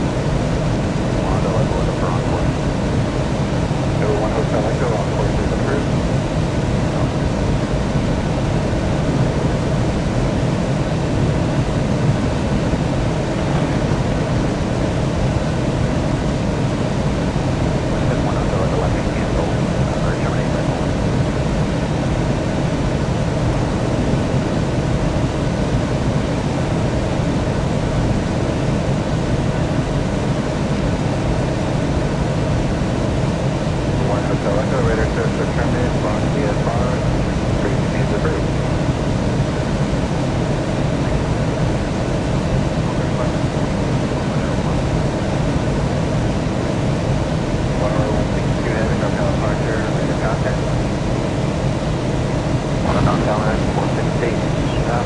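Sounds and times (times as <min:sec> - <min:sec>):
jet airliner rumble and hiss: 0:00.0 - 0:55.0.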